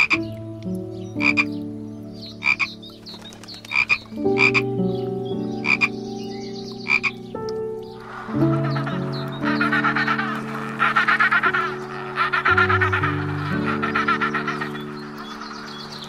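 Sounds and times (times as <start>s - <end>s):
frog croaking: 0.0s - 1.6s, 2.3s - 2.9s, 3.7s - 4.8s, 5.6s - 6.0s, 6.7s - 7.2s, 8.0s - 16.0s.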